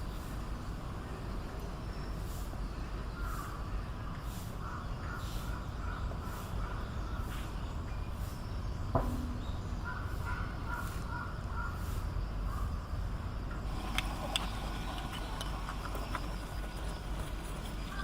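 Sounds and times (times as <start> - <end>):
low background rumble: 8.7 - 10.8.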